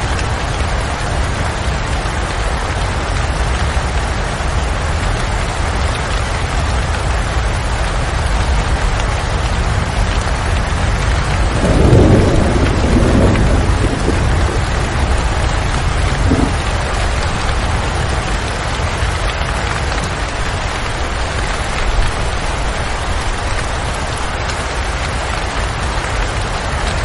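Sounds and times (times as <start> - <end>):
heavy rain: 0.0 - 27.0
low rumble of thunder: 9.6 - 25.4.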